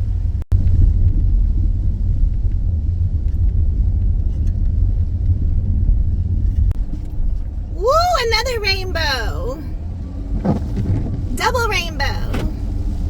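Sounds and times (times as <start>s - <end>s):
road and engine noise in car cabin: 0.0s - 13.0s.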